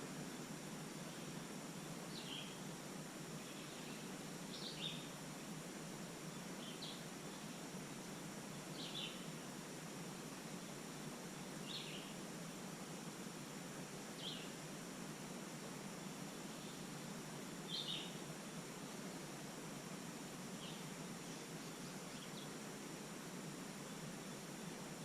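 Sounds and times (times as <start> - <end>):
steady background hiss: 0.0 - 25.0
small bird chirping: 17.7 - 18.2.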